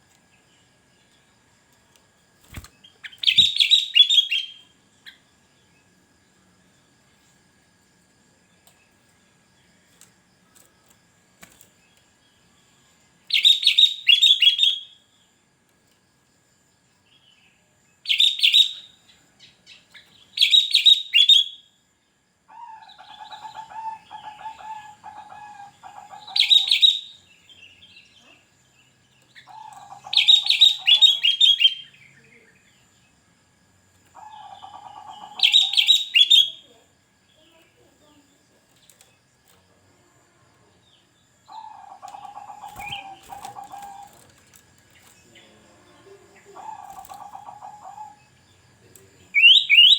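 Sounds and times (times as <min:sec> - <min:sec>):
low bird trilling: 0:29.4 - 0:32.0, 0:34.2 - 0:36.6, 0:41.5 - 0:44.2, 0:46.0 - 0:48.2
bird whistled phrases: 0:35.2 - 0:36.7, 0:49.4 - 0:49.9.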